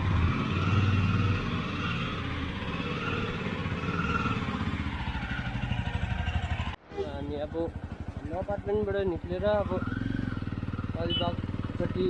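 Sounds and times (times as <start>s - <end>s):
road and wind noise: 0.0s - 12.0s
motorcycle engine running: 2.5s - 6.8s, 7.4s - 12.0s.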